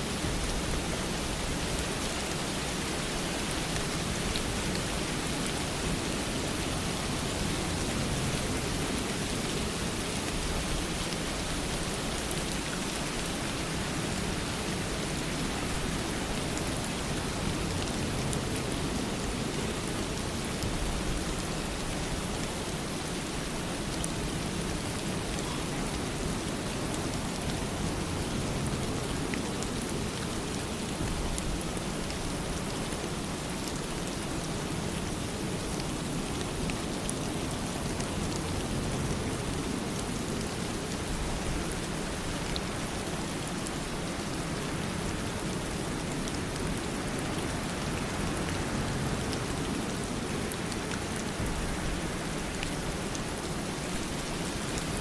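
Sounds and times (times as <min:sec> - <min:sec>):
steady rain pattering: 0:00.0 - 0:55.0.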